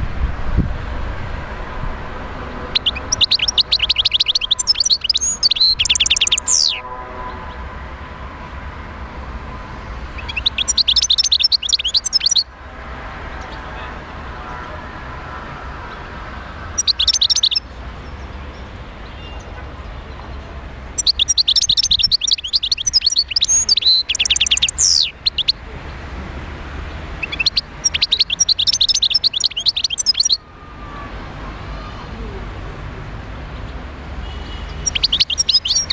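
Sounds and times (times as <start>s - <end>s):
goldfinch twittering song: 2.7s - 6.8s, 10.2s - 12.5s, 16.7s - 19.5s, 20.2s - 25.6s, 27.2s - 30.4s, 34.4s - 35.9s.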